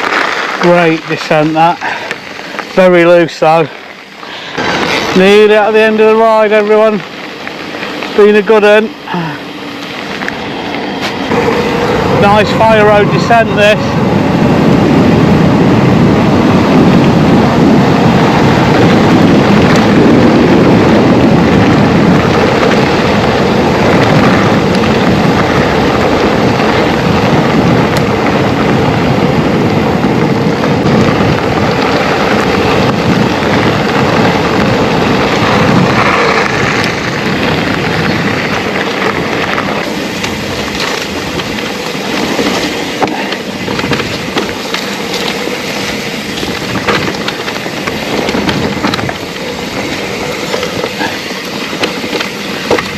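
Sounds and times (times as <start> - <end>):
tyre roar on gravel: 0.0 - 52.9
wind rush on camera: 0.0 - 52.9
bike clicks and knocks: 30.4 - 52.9.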